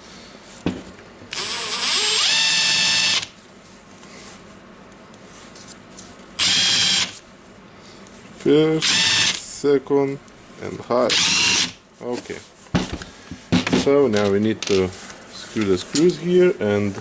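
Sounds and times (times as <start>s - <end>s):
impact wrench motor whining: 1.3s - 3.3s, 6.4s - 7.2s, 11.1s - 11.8s.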